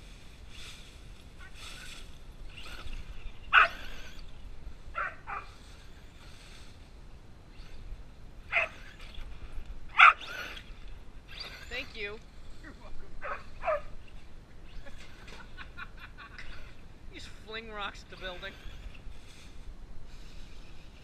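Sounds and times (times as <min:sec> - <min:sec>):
husky barking: 0:03.5 - 0:04.0, 0:04.9 - 0:05.6, 0:08.5 - 0:08.9, 0:09.9 - 0:10.4, 0:13.2 - 0:14.0.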